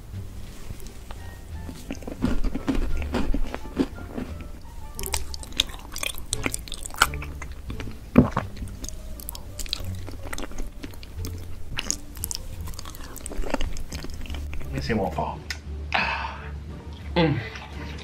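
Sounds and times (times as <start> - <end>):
wet chewing: 0.7 - 14.8
loud bite: 1.8 - 14.7.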